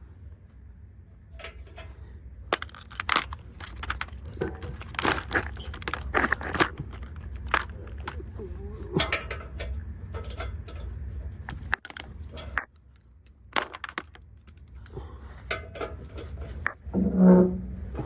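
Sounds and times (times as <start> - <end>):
hand tools clinking: 2.6 - 10.9, 13.6 - 16.8.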